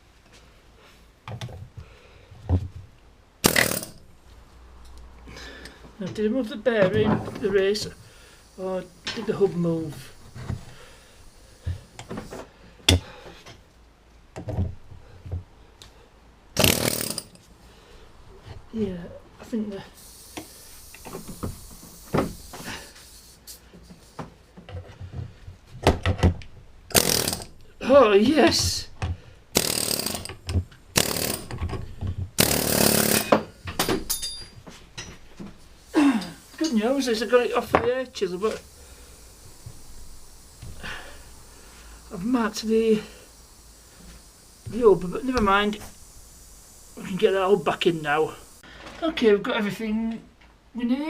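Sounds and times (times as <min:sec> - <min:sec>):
power tool burst: 0:03.4 - 0:04.0, 0:16.6 - 0:17.4, 0:26.9 - 0:28.8, 0:29.5 - 0:31.7, 0:32.4 - 0:34.4, 0:35.7 - 0:48.6.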